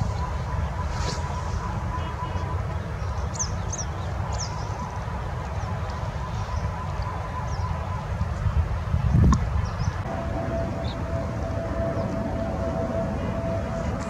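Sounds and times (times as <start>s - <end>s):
bird chirps: 0.0s - 8.0s.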